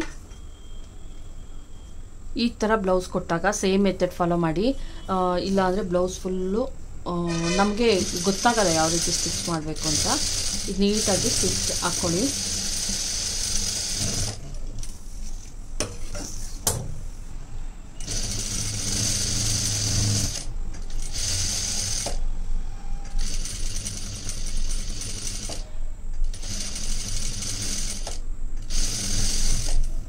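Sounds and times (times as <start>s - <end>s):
sewing machine stitching: 7.3s - 14.5s, 18.0s - 22.2s, 23.1s - 30.0s.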